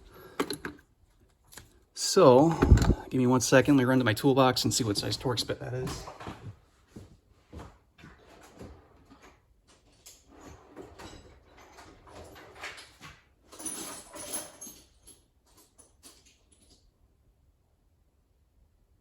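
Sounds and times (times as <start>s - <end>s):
rummaging clatter in toolbox: 0.0s - 0.9s, 4.9s - 16.8s
footsteps and shuffles: 4.6s - 9.0s.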